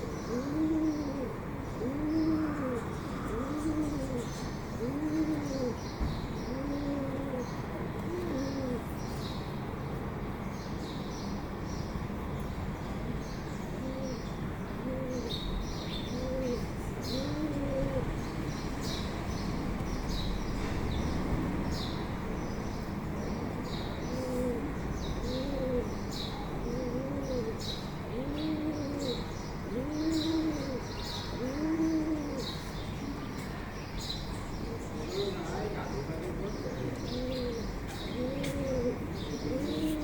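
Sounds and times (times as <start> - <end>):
dove cooing: 0.0 - 8.9, 13.7 - 18.2, 23.4 - 33.3, 34.7 - 40.0
small birds chirping: 0.0 - 9.5, 10.5 - 40.0.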